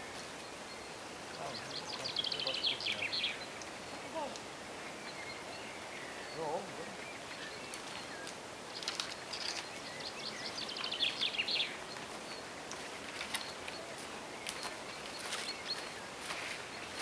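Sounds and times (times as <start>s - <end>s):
faint forest background noise: 0.0s - 17.0s
songbird singing: 0.0s - 17.0s.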